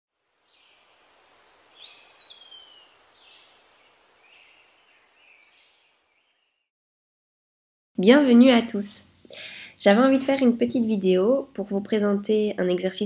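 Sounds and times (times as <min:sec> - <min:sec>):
outdoor hiss: 0:00.2 - 0:06.0, 0:09.0 - 0:10.0
faint birdsong chirps: 0:00.4 - 0:06.7
whistled bird note: 0:04.4 - 0:06.7.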